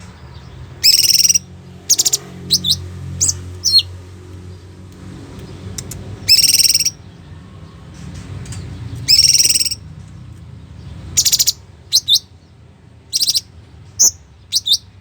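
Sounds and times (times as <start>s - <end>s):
bird whistling notes: 0.8s - 3.9s, 6.2s - 7.0s, 9.0s - 9.8s, 13.2s - 14.9s
harsh buzzy bird call: 0.8s - 4.0s, 6.2s - 7.0s, 9.1s - 9.8s.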